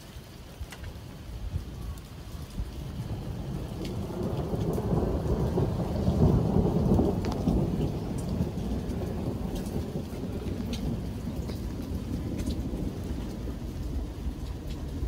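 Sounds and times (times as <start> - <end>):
rain falling: 0.0 - 15.0
sharp raindrop ticks: 0.0 - 15.0.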